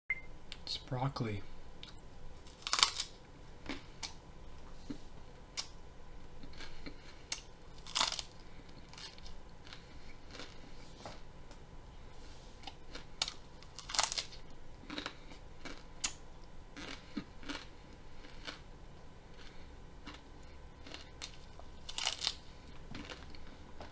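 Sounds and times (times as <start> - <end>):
person crunching raw broccoli: 1.8 - 5.8, 6.4 - 11.2, 12.6 - 18.7, 19.3 - 23.8.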